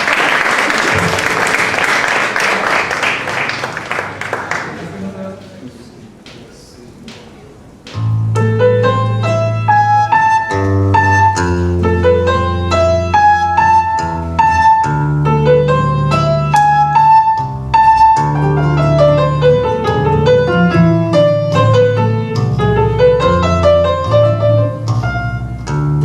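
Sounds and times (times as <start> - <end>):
baroque-style keyboard music: 7.9 - 26.0.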